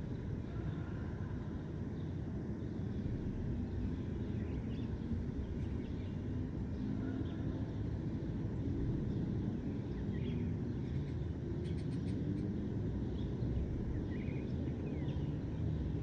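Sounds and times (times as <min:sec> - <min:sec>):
distant city traffic rumble: 0:00.0 - 0:16.0
faint bird chirps: 0:09.7 - 0:15.4.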